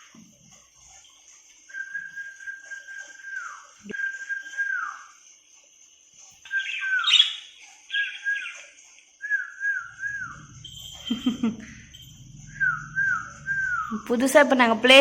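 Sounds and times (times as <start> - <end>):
person whistling: 1.7 - 5.1, 9.2 - 10.5, 12.5 - 14.0
lovebirds chirping and squawking: 6.4 - 15.0.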